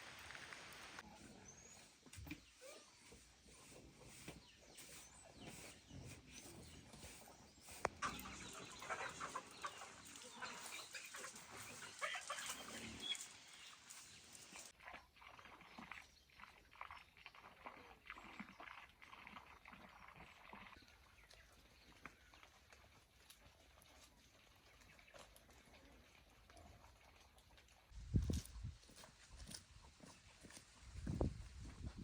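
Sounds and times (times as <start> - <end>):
farm animals calling softly: 1.0 - 14.7.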